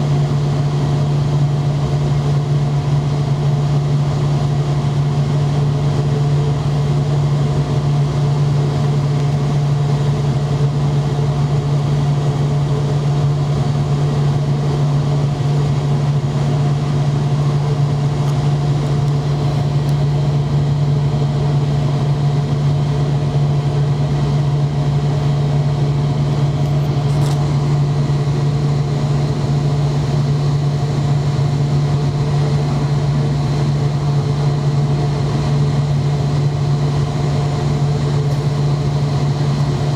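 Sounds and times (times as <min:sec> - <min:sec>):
airliner cabin hum: 0:12.3 - 0:39.9.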